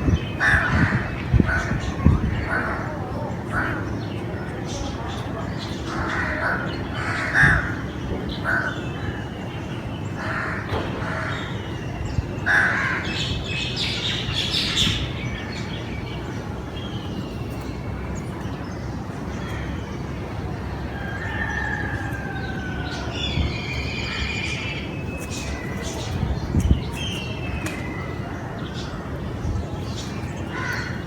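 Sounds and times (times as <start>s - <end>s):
crows cawing: 0.4s - 1.8s, 5.9s - 8.8s, 10.2s - 11.7s, 12.4s - 13.3s, 30.5s - 31.0s.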